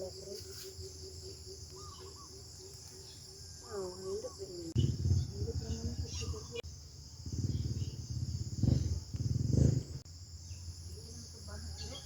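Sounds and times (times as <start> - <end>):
crickets chirring: 0.0 - 12.0
low rumbling microphone noise: 4.6 - 10.8.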